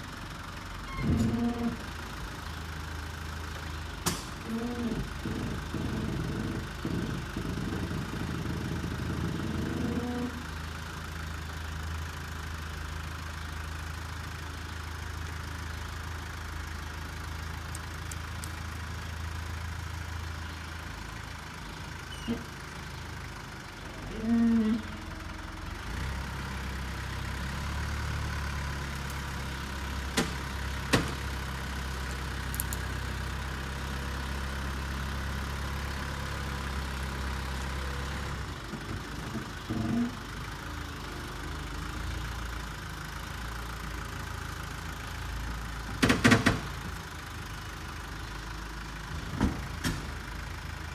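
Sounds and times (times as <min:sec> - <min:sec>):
tractor engine running: 0:00.0 - 0:50.9
loud squeak: 0:00.9 - 0:01.9, 0:04.4 - 0:10.5, 0:22.1 - 0:22.6
sharp knocks: 0:05.2 - 0:10.1, 0:30.2 - 0:31.3.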